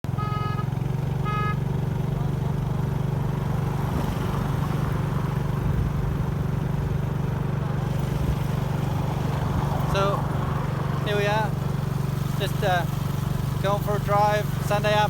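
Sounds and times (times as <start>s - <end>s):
motorbike engine running: 0.0s - 15.0s.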